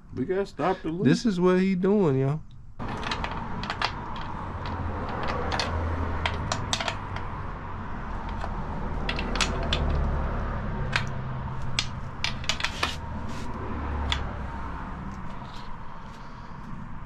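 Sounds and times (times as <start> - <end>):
hand tools clicking and clinking: 2.8 - 7.3, 8.2 - 10.2, 10.9 - 14.3.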